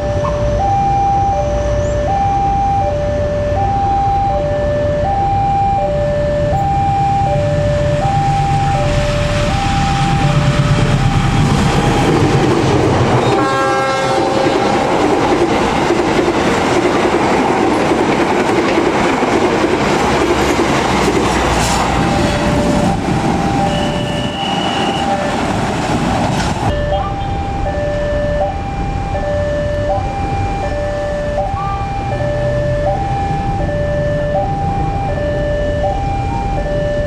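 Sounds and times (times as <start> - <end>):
crossing alarm two-tone warning: 0.0 - 37.0
train wheels clacking on rails: 8.8 - 27.8
train horn blast: 10.7 - 15.1, 20.3 - 25.5.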